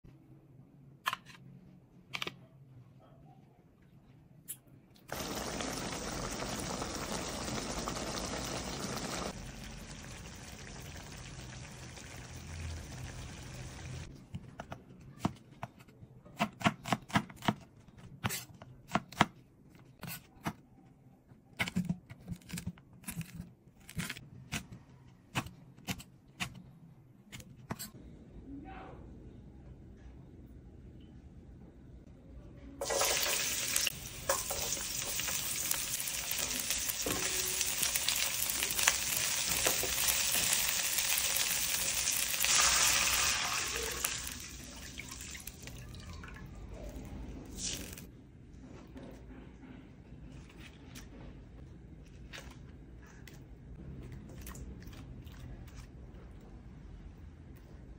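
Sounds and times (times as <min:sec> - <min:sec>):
liquid pouring: 0:05.1 - 0:14.0, 0:40.7 - 0:46.6.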